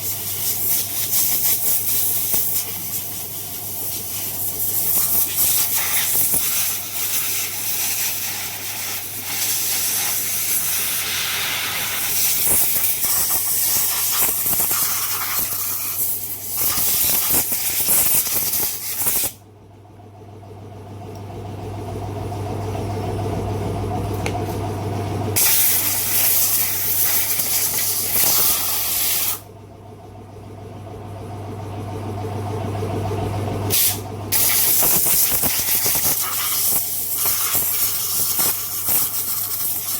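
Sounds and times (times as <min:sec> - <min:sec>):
low hum: 0:19.4 - 0:34.4.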